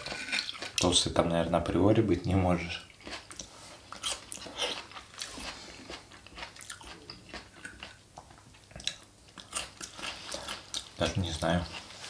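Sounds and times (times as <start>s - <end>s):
chewing crunchy vegetables: 0.0s - 12.0s.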